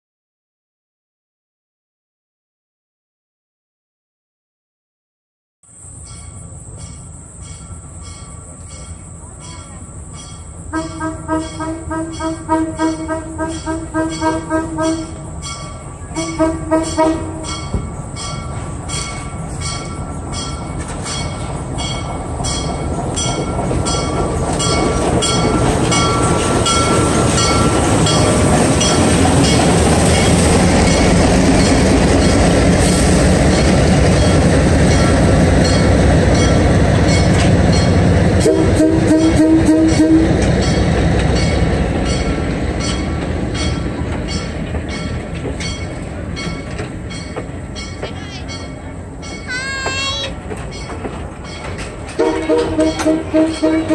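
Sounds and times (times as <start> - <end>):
diesel locomotive engine rumble: 5.7 - 53.9
train horn: 10.7 - 15.3, 16.1 - 17.7, 38.4 - 40.6, 52.1 - 53.9
wheels clicking over rail joints: 12.8 - 38.2, 39.8 - 53.9.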